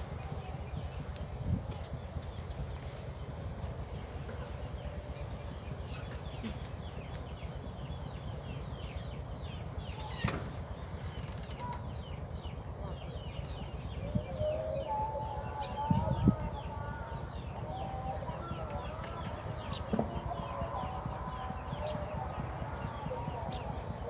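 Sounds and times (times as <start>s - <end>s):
steady low rumble: 0.0s - 14.6s
small birds chirping: 0.0s - 24.0s.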